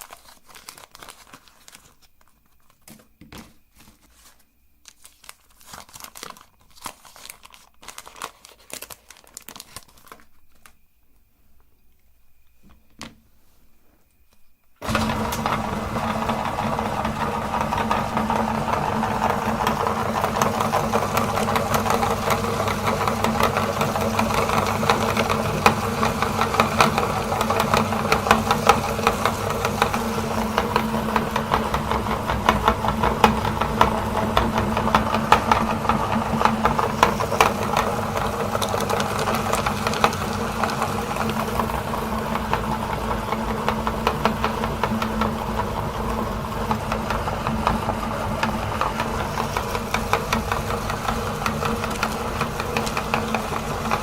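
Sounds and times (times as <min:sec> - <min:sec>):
meat grinder motor hum: 0:14.8 - 0:54.0.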